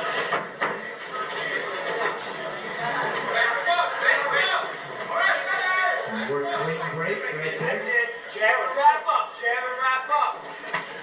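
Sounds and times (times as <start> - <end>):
background music: 6.1 - 8.0.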